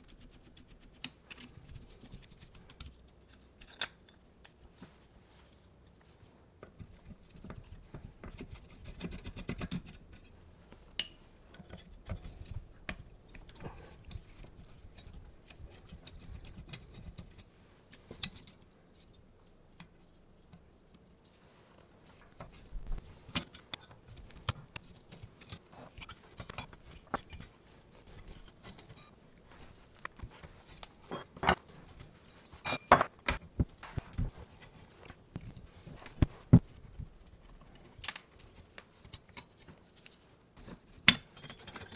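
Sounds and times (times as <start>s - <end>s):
metal parts clinking and tapping: 32.6s - 34.2s.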